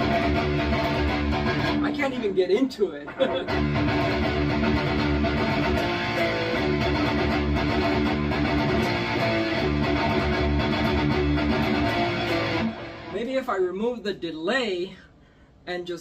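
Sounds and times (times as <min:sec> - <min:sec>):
distorted electric guitar riff: 0:00.0 - 0:02.4, 0:03.1 - 0:13.3.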